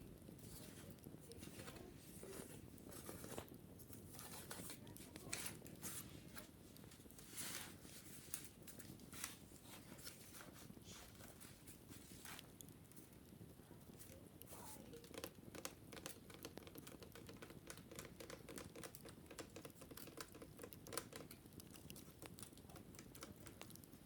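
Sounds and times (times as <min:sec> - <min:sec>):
wicker baskets scratching: 0:07.2 - 0:12.4.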